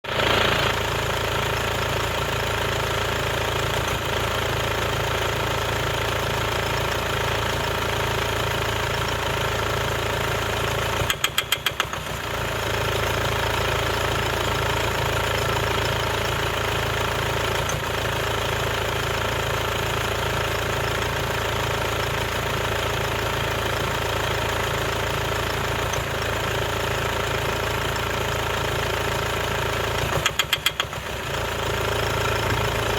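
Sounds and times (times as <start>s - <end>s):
diesel engine idling: 0.1s - 32.9s
engine knocks: 10.9s - 12.3s, 29.9s - 31.2s.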